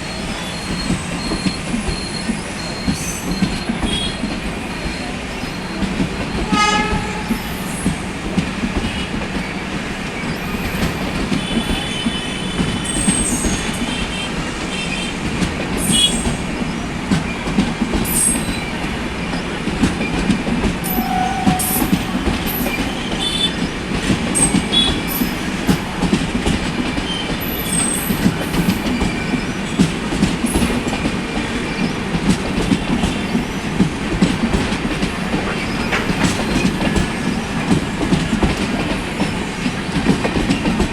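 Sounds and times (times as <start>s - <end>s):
high wheel squeals: 0.0s - 6.6s, 11.5s - 14.0s, 20.8s - 25.6s, 27.1s - 29.8s
train wheels clattering over rails: 0.0s - 40.9s.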